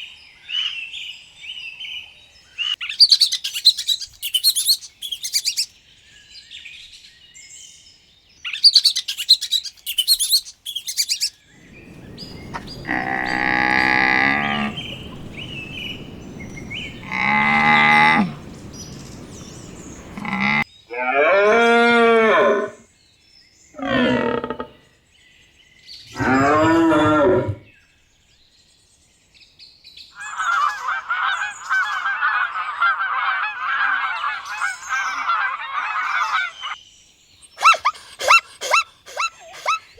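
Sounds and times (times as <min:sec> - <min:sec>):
high bird chirps: 0:02.8 - 0:05.7, 0:08.5 - 0:20.6
many birds chattering: 0:02.9 - 0:05.7, 0:08.6 - 0:20.6, 0:30.2 - 0:36.8
cattle mooing: 0:11.7 - 0:20.6.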